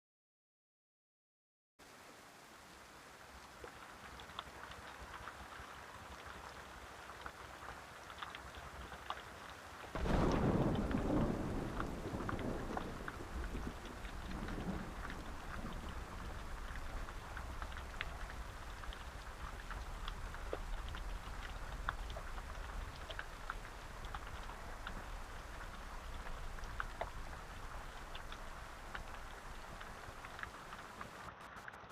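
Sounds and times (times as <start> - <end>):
steady rain: 1.8 - 31.9
dripping water: 3.2 - 31.9
thunder clap and rumble: 10.0 - 30.9.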